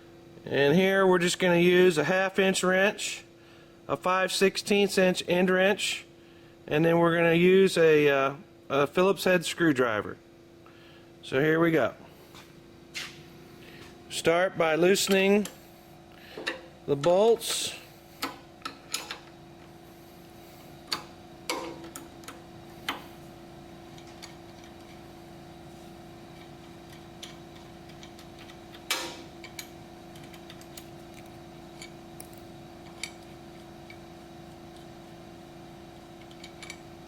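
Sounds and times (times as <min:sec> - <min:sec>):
steady background hum: 0:00.0 - 0:37.0
wrench metallic clicks and clinks: 0:36.2 - 0:36.8.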